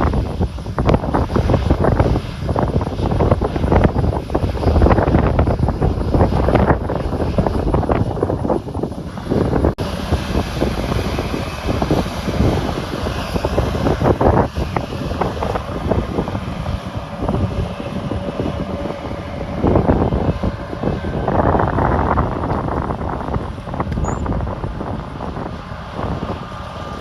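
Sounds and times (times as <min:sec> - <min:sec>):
heavy machinery engine running: 0:00.0 - 0:27.0
wind buffeting microphone: 0:00.0 - 0:27.0.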